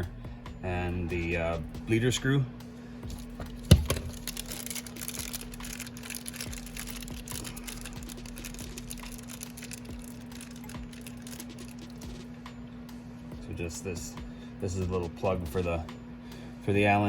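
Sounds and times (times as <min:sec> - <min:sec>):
steady low hum: 0:00.0 - 0:17.0
small metal parts clicking: 0:03.1 - 0:12.2.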